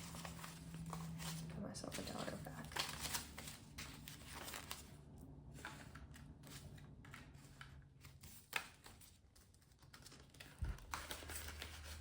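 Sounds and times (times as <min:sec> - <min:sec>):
paper rustling and tapping: 0:00.0 - 0:12.0.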